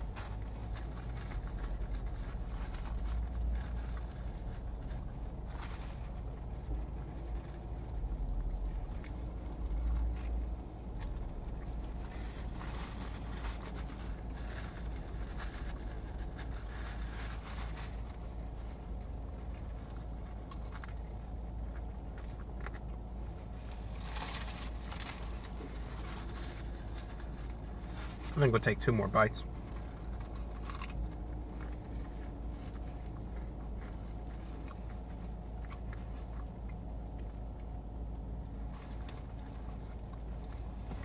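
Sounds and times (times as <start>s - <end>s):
paper wrapper crackling: 0.0s - 36.3s
low rumble in car cabin: 0.0s - 41.0s
person chewing food: 18.0s - 27.9s, 29.4s - 41.0s.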